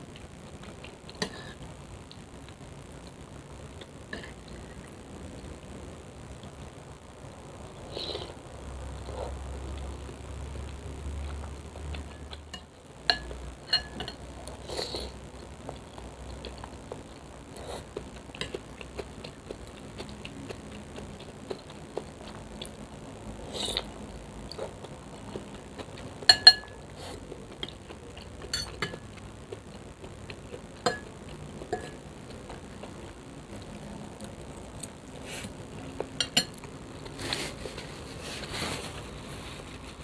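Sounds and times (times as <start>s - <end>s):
eating noises: 14.1s - 40.0s.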